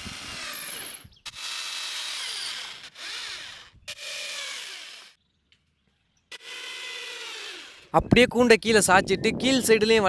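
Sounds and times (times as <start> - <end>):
power drill driving screws: 0.0 - 5.2, 6.3 - 7.9.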